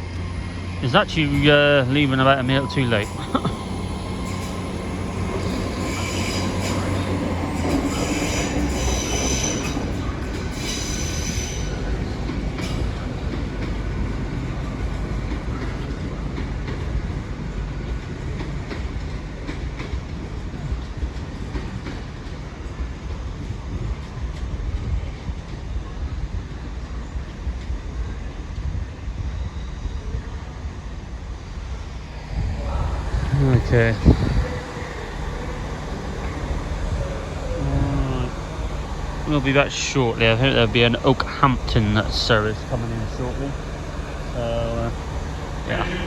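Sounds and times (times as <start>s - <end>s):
train engine and wheels rumbling: 0.0s - 46.0s
high-pitched wheel squeal: 0.8s - 12.0s, 32.6s - 46.0s.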